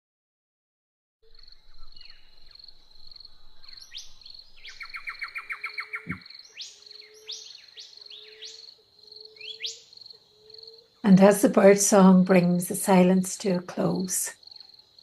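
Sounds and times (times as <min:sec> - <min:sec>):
high-pitched pulsing chirr: 0:01.3 - 0:06.2
birds calling: 0:01.3 - 0:10.9
fast bird trill: 0:01.4 - 0:08.4.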